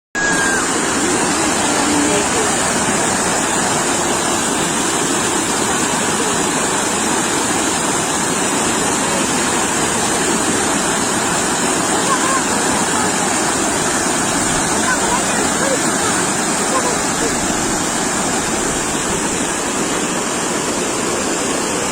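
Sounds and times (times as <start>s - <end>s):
sea waves breaking on beach: 0.2s - 21.9s.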